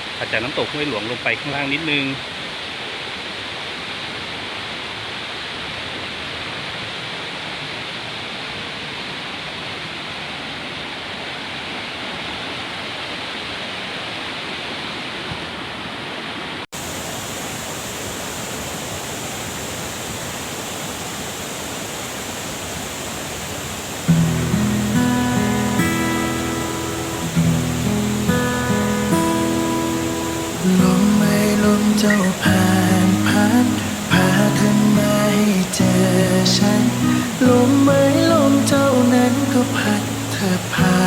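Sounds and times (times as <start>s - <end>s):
waterfall rushing: 0.0s - 11.6s, 16.8s - 41.0s
acoustic guitar music: 24.1s - 41.0s.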